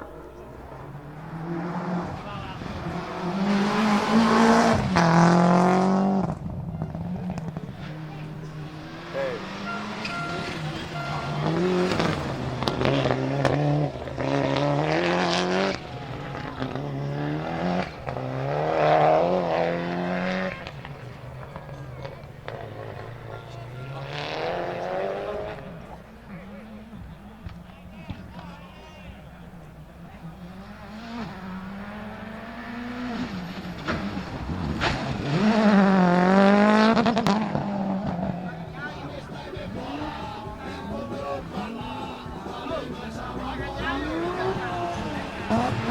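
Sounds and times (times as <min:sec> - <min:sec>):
rally car engine accelerating: 0:00.0 - 0:45.9
sharp cracks between gear shifts: 0:33.2 - 0:35.6.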